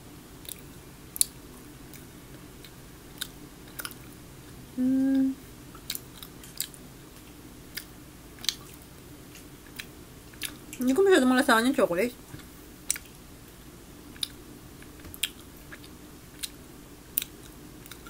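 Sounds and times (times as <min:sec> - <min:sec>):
person chewing with mouth clicks: 0:00.4 - 0:00.6, 0:01.2 - 0:04.1, 0:05.0 - 0:10.8, 0:12.9 - 0:13.2, 0:14.2 - 0:16.6, 0:17.2 - 0:18.0
person humming: 0:04.7 - 0:05.4.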